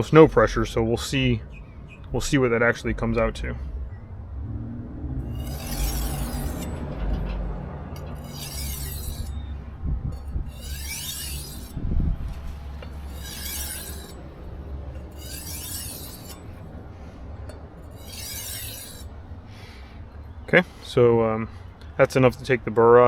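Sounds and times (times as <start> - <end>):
knife scraping on whetstone: 5.2 - 9.6, 10.2 - 16.7, 17.5 - 19.2.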